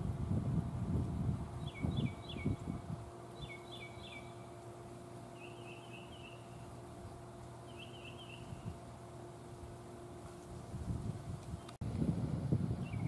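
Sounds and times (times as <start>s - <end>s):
faint steady hum: 0.0s - 13.0s
songbird chirping and trilling: 1.6s - 2.7s, 3.3s - 4.7s, 5.3s - 6.9s, 7.6s - 8.8s, 12.8s - 13.0s.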